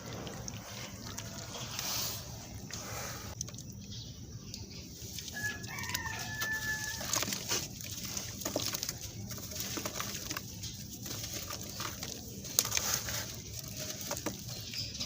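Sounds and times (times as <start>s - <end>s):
crumbling sand-cement crackling: 4.8s - 15.0s
rooster crowing: 5.3s - 7.4s.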